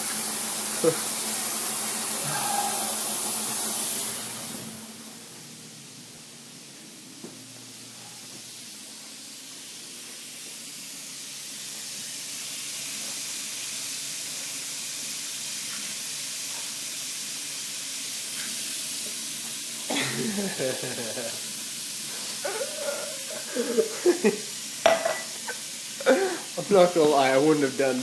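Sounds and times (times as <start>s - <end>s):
tap water running into sink: 0.0s - 4.8s.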